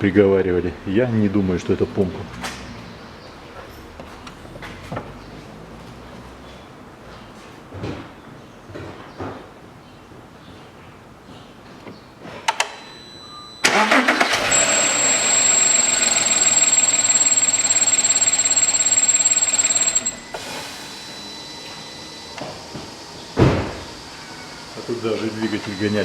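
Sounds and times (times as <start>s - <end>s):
car engine cranking and running: 13.6s - 20.3s
high-pitched whistle: 14.5s - 20.4s.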